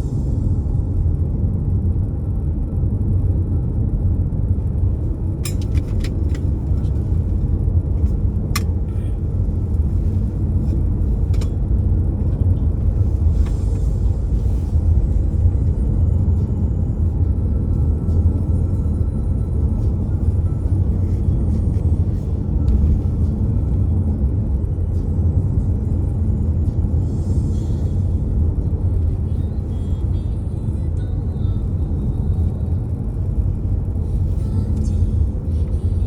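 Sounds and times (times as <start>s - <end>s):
low rumble: 0.0s - 36.0s.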